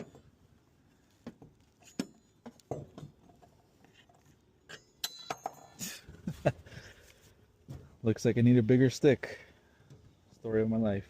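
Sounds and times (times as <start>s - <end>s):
ringing metal clinks: 4.7s - 6.0s.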